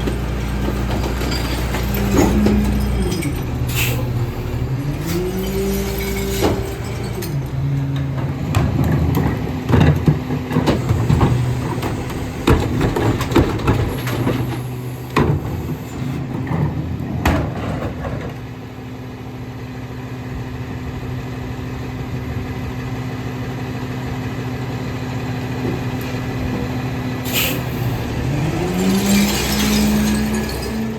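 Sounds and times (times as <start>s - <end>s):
recyclables clanking into hopper: 0.0s - 15.8s, 27.3s - 30.9s
garbage truck diesel engine: 0.0s - 30.9s.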